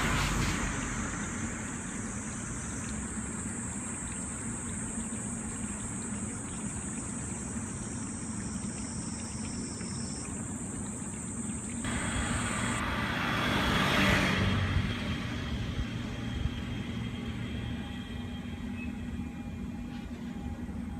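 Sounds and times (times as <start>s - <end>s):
vehicle passing: 0.0s - 2.2s, 11.9s - 17.4s
low hum with high whine: 14.7s - 20.9s.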